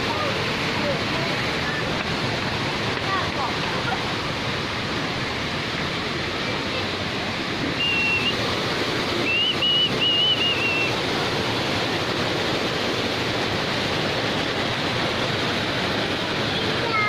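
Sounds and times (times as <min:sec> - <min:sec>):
waterfall rushing: 0:00.0 - 0:17.0
short whistled notes: 0:07.8 - 0:08.4, 0:09.2 - 0:10.9
thin high whistle: 0:07.8 - 0:08.4, 0:09.2 - 0:11.0.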